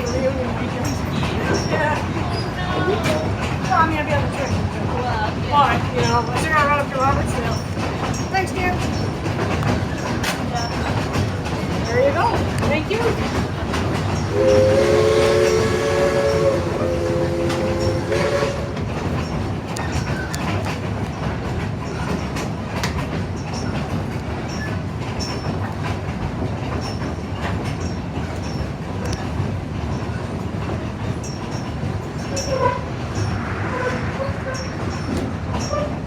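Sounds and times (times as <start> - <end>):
train rumbling: 0.0 - 36.0
wheels clacking over rail joints: 0.0 - 36.0
steam locomotive chime whistle: 14.2 - 18.9.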